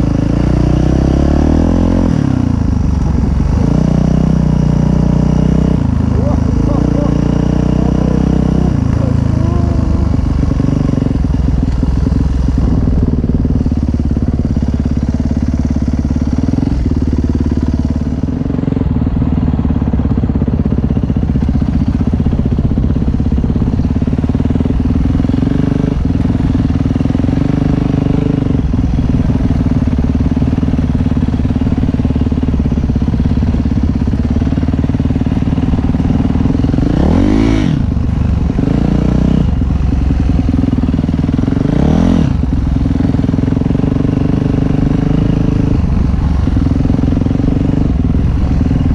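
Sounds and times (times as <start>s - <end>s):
dirt bike engine running: 0.0s - 48.9s.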